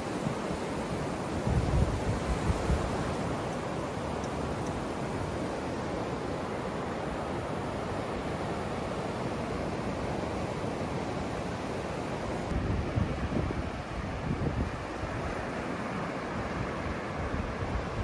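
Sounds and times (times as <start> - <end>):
surf washing on a beach: 0.0 - 18.0
wind buffeting microphone: 1.2 - 3.4, 12.5 - 15.4.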